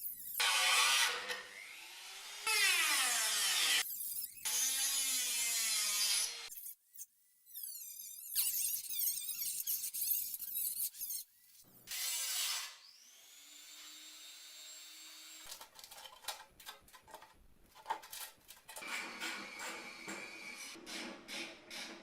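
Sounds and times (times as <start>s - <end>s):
clicks and scraping: 15.5s - 19.4s.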